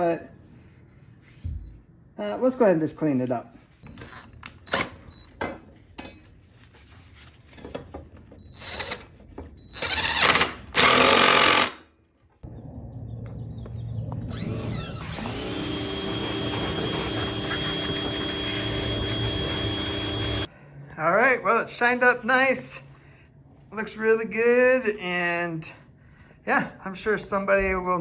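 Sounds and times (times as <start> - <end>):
electric power tool whine: 9.8 - 11.8, 14.0 - 20.5.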